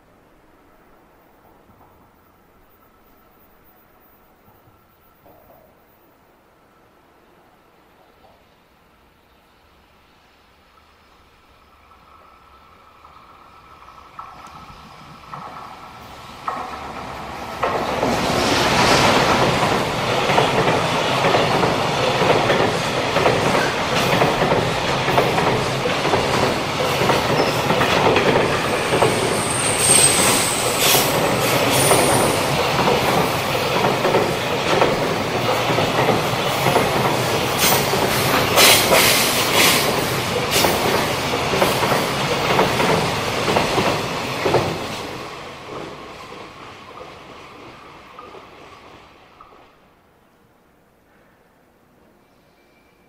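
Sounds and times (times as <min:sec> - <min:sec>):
train wheels rumbling and rattling: 0:11.9 - 0:50.0
high wheel squeal: 0:27.3 - 0:27.7, 0:28.7 - 0:32.5.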